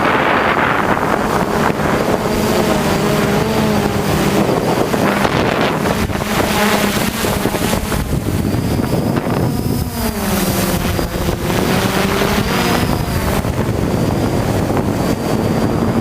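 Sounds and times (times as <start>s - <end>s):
drone propellers whirring: 0.0s - 16.0s
wind buffeting microphone: 0.0s - 16.0s.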